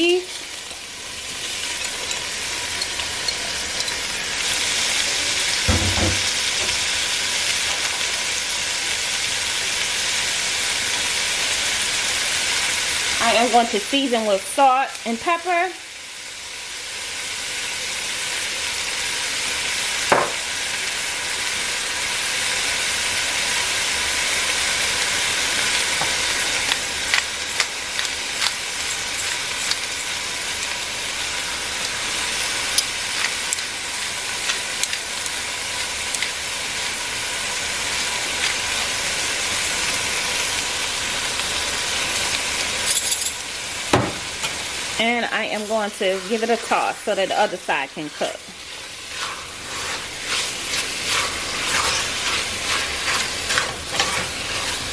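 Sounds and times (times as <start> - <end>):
meat sizzling in oil: 0.0 - 54.9
knock: 5.7 - 6.3, 20.1 - 20.4.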